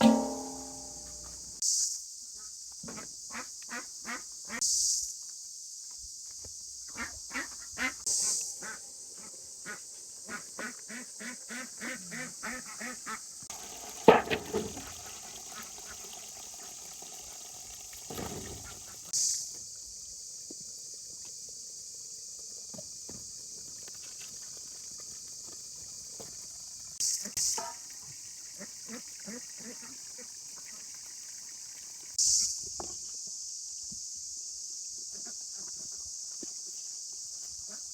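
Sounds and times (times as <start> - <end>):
sharp knock: 0.0 - 1.2
insect chorus: 0.0 - 37.9.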